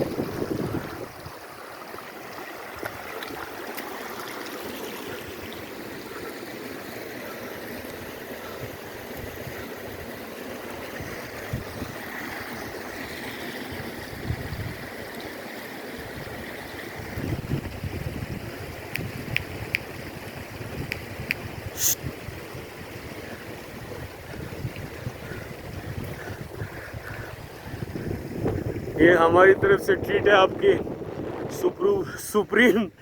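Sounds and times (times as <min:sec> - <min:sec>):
wind gusts on microphone: 0:00.0 - 0:01.4, 0:10.9 - 0:12.1, 0:13.7 - 0:15.0, 0:17.0 - 0:33.0
mountain water rushing: 0:00.0 - 0:33.0.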